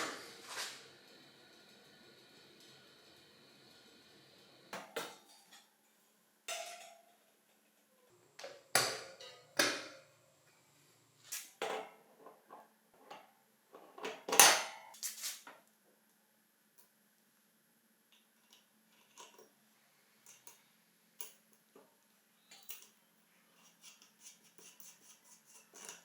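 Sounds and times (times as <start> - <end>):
tools and metal parts clinking: 18.4 - 19.5, 22.4 - 26.0.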